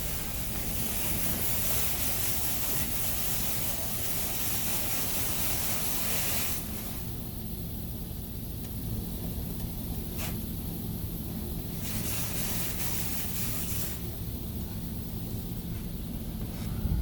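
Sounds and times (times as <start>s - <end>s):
water spray hissing on car: 0.0s - 8.0s, 9.0s - 15.9s
low machinery hum: 0.0s - 17.0s.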